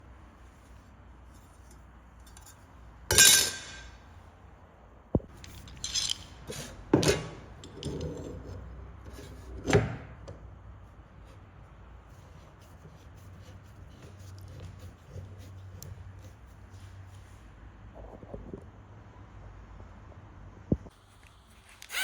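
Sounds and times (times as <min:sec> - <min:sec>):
metal objects clinking and knocking: 0:01.3 - 0:03.9, 0:05.4 - 0:08.4.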